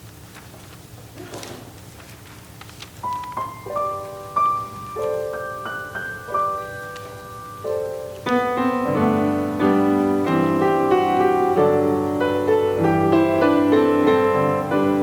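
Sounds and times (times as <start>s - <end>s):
piano playing chords: 3.1s - 15.0s.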